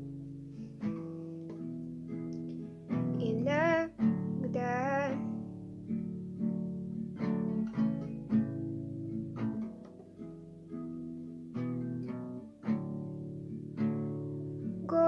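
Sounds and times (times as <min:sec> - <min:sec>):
acoustic guitar strumming: 0:00.0 - 0:15.0
person singing: 0:03.2 - 0:05.4.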